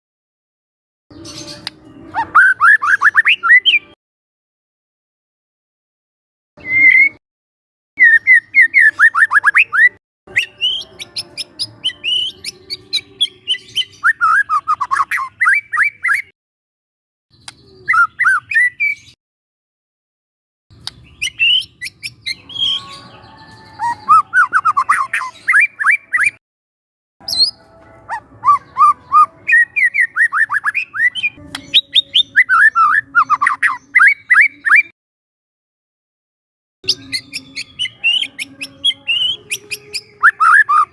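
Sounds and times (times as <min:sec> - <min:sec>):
bird singing whistles and clicks: 0:01.5 - 0:03.8, 0:06.6 - 0:07.2, 0:13.5 - 0:16.3, 0:17.3 - 0:19.1, 0:20.8 - 0:22.8, 0:28.5 - 0:34.9, 0:36.9 - 0:40.9.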